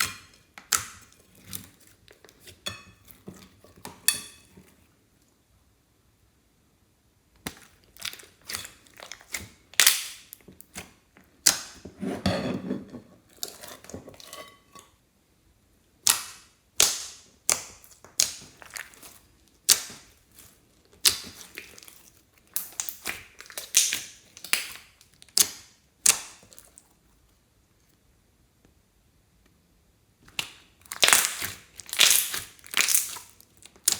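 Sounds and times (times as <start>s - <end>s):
slime popping and crackling: 7.4s - 11.8s, 16.0s - 26.8s, 30.3s - 33.9s
slime squelch: 7.4s - 12.0s, 16.0s - 27.3s, 30.2s - 33.9s.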